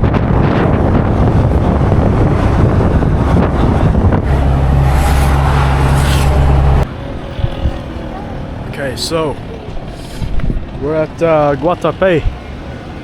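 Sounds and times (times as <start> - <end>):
wind buffeting microphone: 0.0 - 8.7
bus engine and road rumble: 0.0 - 13.0.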